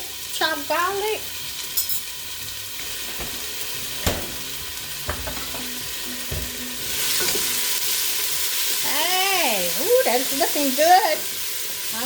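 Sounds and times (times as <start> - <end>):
vegetables sizzling in oil: 0.0 - 12.0
spoon knocking against pot: 5.0 - 6.6.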